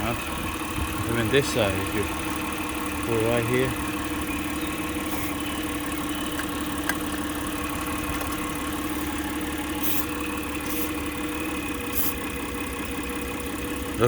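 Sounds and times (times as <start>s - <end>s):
car engine idling: 0.0s - 14.0s
spray can hissing: 9.8s - 11.0s, 11.9s - 12.2s.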